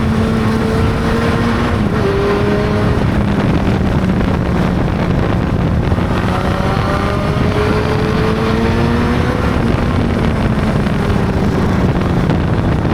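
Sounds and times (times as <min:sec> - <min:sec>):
motorcycle engine running: 0:00.0 - 0:12.9
wind buffeting microphone: 0:00.0 - 0:12.9.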